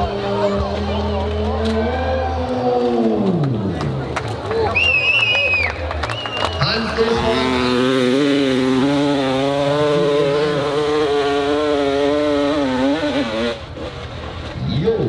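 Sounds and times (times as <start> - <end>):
dirt bike engine revving high: 6.6 - 14.4.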